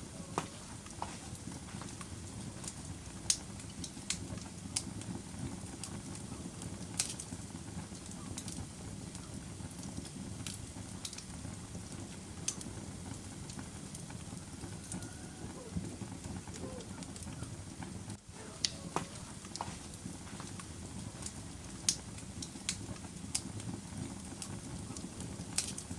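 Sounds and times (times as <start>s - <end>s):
fire crackling and popping: 0.0s - 25.9s.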